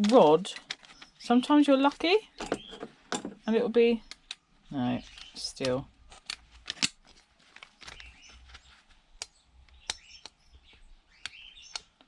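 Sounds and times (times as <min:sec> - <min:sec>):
plastic parts clicking: 0:05.0 - 0:08.6, 0:09.2 - 0:12.0
faint bird chirps: 0:07.9 - 0:11.9.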